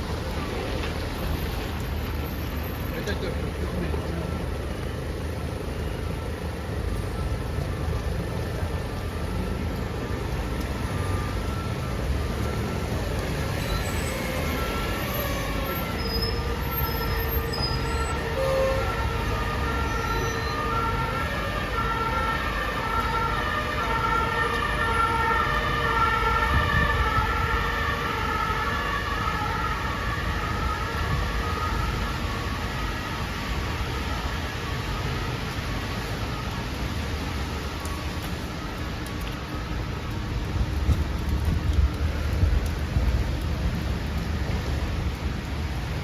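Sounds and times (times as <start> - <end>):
street traffic noise: 0.0 - 46.0
two-tone siren: 6.7 - 39.8.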